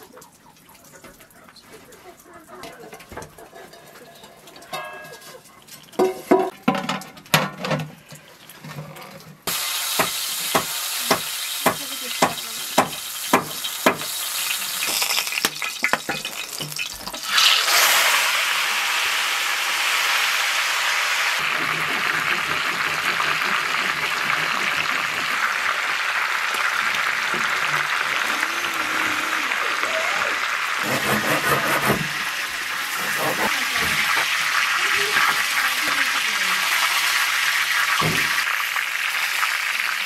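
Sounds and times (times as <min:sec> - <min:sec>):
food sizzling in hot oil: 0:09.4 - 0:40.0.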